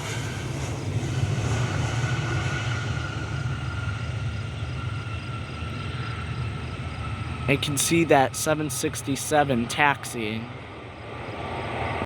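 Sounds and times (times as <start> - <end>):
jet engine rumble and whine: 0.0 - 12.0.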